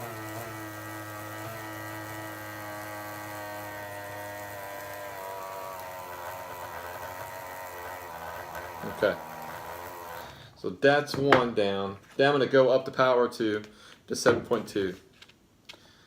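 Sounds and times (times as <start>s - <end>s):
electric motor whining in water: 0.0s - 10.4s.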